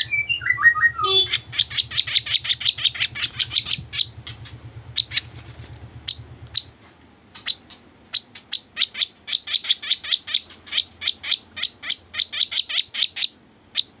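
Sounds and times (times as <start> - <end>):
bird chirping: 0.0 - 6.8, 7.4 - 14.0
low hum: 0.0 - 6.8.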